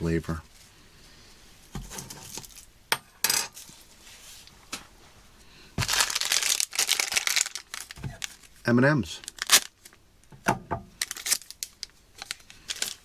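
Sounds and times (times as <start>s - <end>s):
plastic packaging crinkling: 5.8s - 8.6s, 9.2s - 10.0s, 11.0s - 13.0s.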